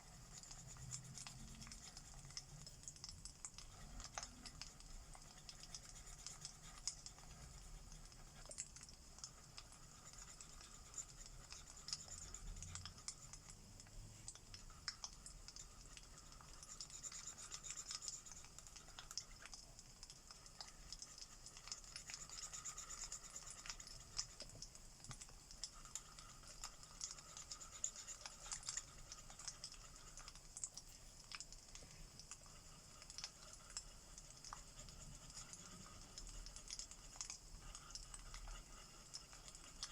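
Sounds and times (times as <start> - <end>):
marker scratching on paper: 0.3 - 2.7, 5.0 - 8.4, 9.6 - 13.3, 21.1 - 24.1.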